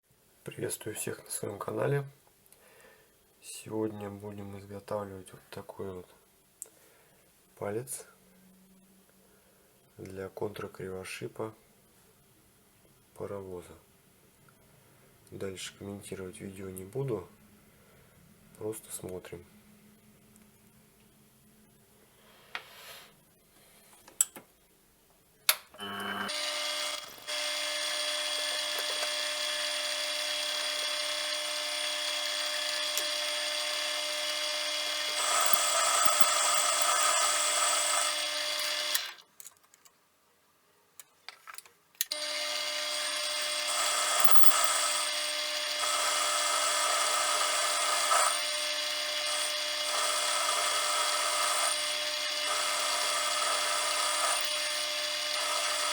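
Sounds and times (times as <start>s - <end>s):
lathe running with whine: 25.8s - 39.1s, 42.1s - 55.9s.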